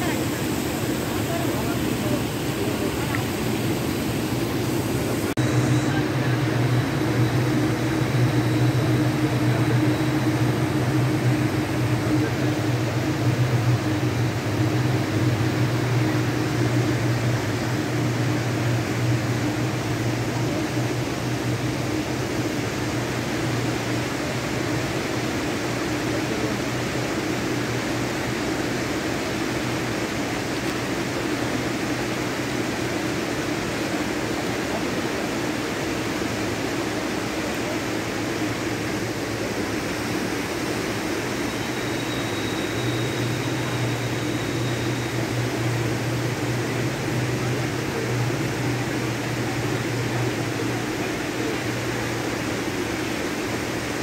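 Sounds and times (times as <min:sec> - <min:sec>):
low hum: 0:00.0 - 0:33.2
faint high whine: 0:00.0 - 0:54.0
freight train rumbling: 0:00.0 - 0:54.0
waterfall rushing: 0:00.0 - 0:54.0.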